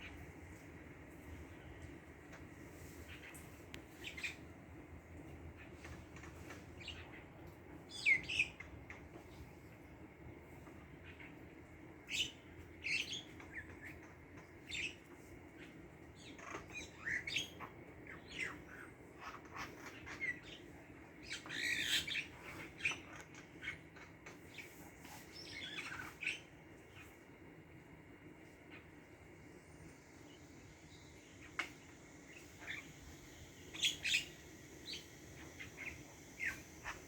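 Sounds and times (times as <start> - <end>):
birds chirping and squawking: 1.5 - 4.6, 10.9 - 27.2, 30.2 - 37.0.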